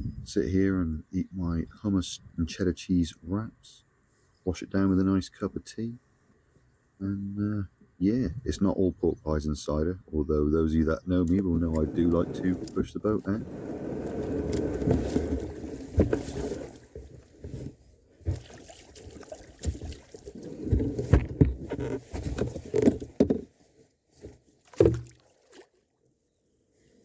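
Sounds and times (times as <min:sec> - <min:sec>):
knocks and thumps from handling gear: 0:14.5 - 0:18.5, 0:20.5 - 0:23.5, 0:24.2 - 0:25.1.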